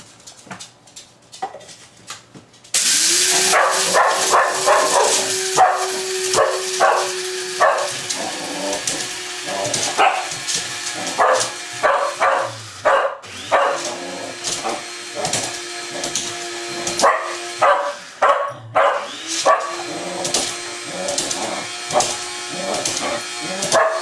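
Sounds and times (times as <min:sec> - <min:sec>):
electric coffee grinder running: 0:02.8 - 0:18.2, 0:19.0 - 0:24.0
dog barking: 0:03.4 - 0:08.4, 0:09.6 - 0:10.4, 0:11.0 - 0:13.9, 0:17.0 - 0:19.8, 0:23.5 - 0:24.0.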